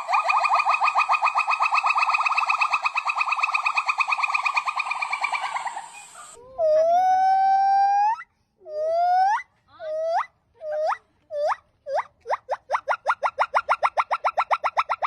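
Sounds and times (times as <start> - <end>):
monkey trilling call: 0.0 - 8.2
monkey long steady call: 0.0 - 15.0.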